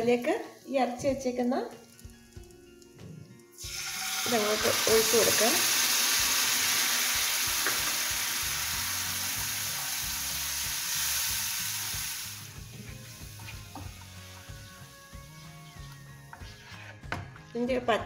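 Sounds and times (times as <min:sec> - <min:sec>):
paste sizzling in hot oil: 0:00.0 - 0:15.4
spatula stirring: 0:16.3 - 0:17.1.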